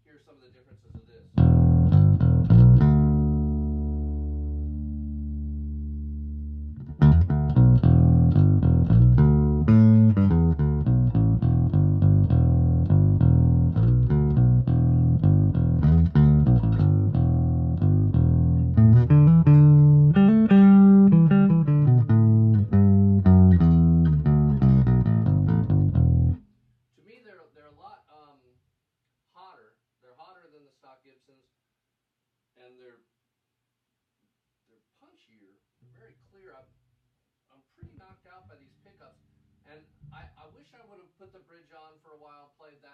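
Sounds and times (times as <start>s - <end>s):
electric bass notes plucked: 1.4s - 26.4s
electric bass sliding notes: 1.4s - 26.4s.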